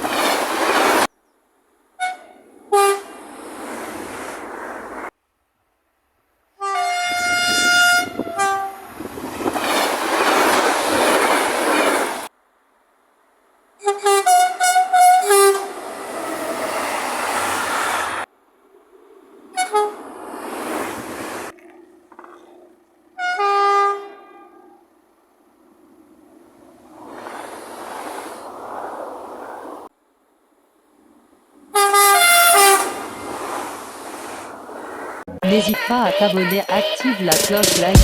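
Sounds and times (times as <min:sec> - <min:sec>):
train rushing past: 0:00.0 - 0:01.1, 0:02.0 - 0:05.1, 0:07.1 - 0:12.3, 0:13.8 - 0:21.5, 0:23.4 - 0:29.9, 0:30.9 - 0:38.0
train horn blasts: 0:02.0 - 0:03.2, 0:06.6 - 0:08.9, 0:13.8 - 0:16.5, 0:19.6 - 0:20.0, 0:23.2 - 0:24.8, 0:31.8 - 0:33.0.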